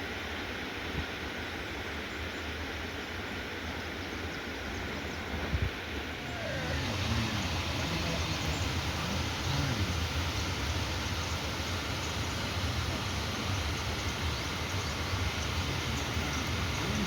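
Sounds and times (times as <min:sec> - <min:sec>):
heavy rain hissing: 0:05.3 - 0:17.0
faint wavering calls: 0:06.0 - 0:17.0.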